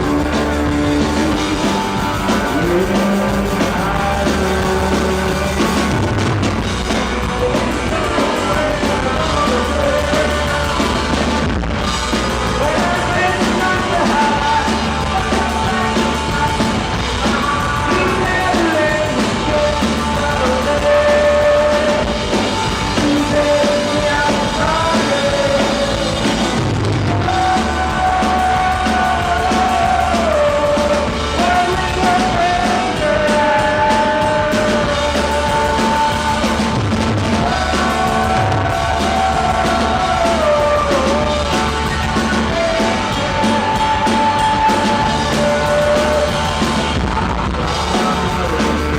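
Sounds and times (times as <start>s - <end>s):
man singing: 0.0s - 48.9s
rock band playing: 0.0s - 48.9s.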